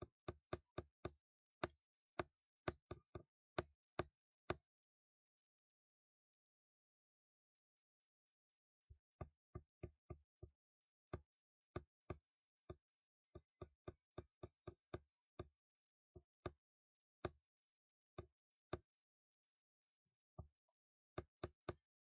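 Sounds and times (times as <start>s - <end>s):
quiet taps on hard surface: 9.2s - 12.8s.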